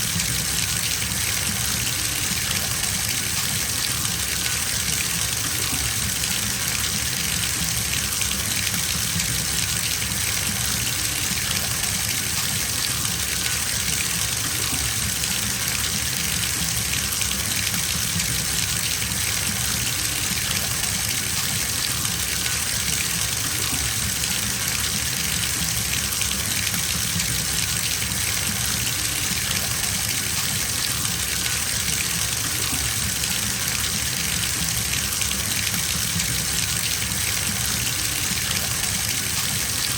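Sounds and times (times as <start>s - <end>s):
tap water filling a bathtub: 0.0s - 39.9s.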